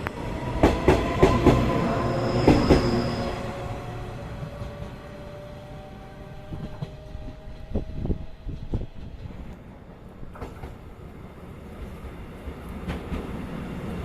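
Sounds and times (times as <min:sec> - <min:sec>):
train wheels clacking on rails: 0:00.5 - 0:03.3, 0:10.3 - 0:10.8
ringing rail tone: 0:01.8 - 0:04.6.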